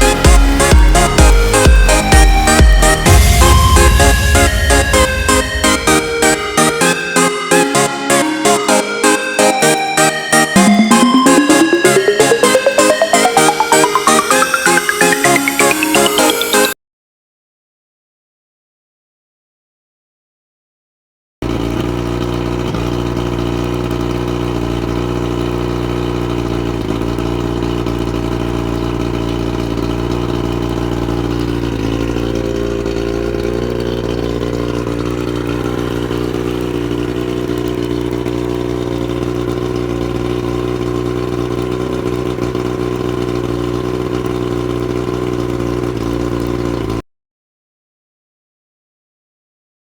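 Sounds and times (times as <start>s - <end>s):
outboard motor idling: 0.0s - 7.1s, 21.4s - 47.0s.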